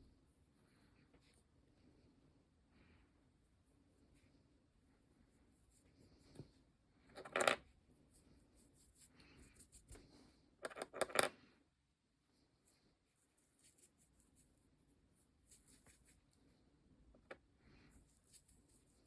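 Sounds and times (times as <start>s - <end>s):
hard objects clicking on table: 10.6s - 11.3s.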